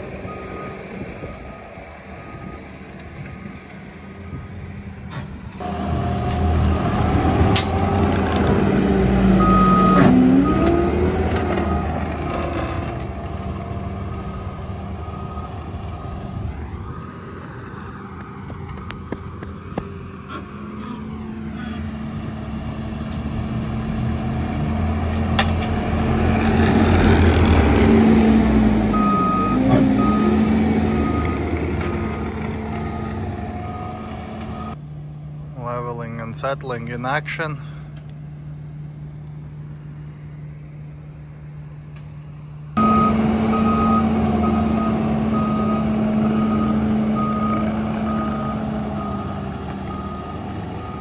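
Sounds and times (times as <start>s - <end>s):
diesel engine under load: 0.0s - 51.0s
reversing alarm beeping: 9.4s - 11.0s, 14.1s - 16.4s, 28.9s - 34.8s, 42.8s - 51.0s.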